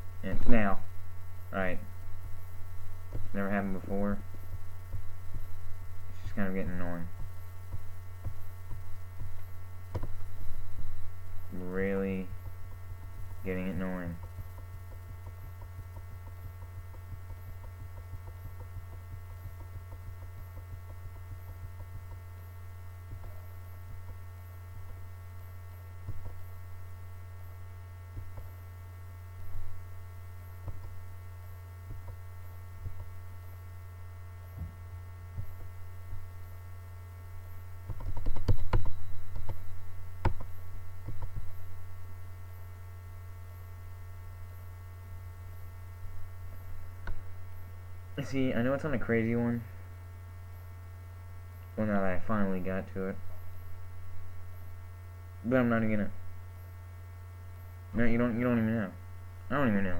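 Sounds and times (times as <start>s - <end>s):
low electrical hum: 0.0s - 59.9s
knocks and clicks: 37.8s - 39.6s.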